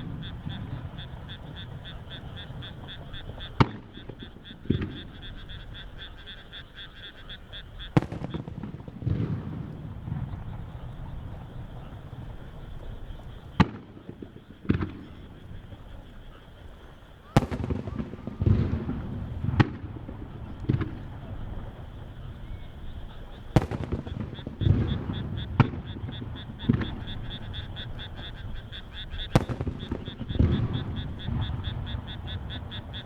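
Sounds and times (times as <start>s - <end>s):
firework shells bursting: 7.9s - 15.9s, 17.3s - 22.1s, 22.8s - 33.0s
rhythmic pulsing call: 15.9s - 33.0s.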